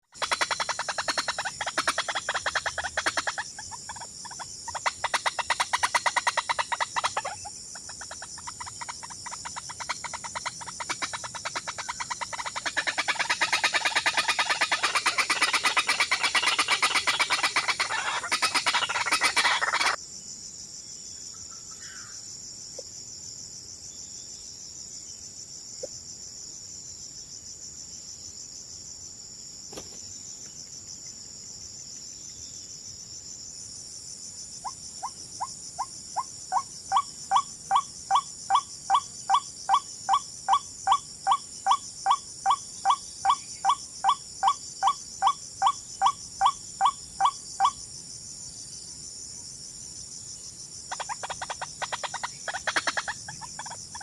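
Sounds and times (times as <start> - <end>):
rapid bird calls: 0.0 - 20.0, 34.6 - 47.8, 50.9 - 54.0
high-pitched insect chorus: 0.0 - 54.0.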